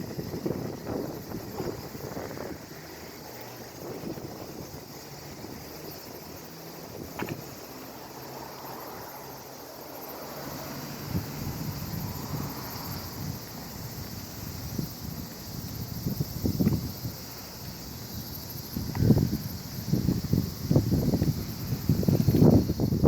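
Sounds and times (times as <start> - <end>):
wind gusting across microphone: 0.0 - 9.4, 10.7 - 23.0.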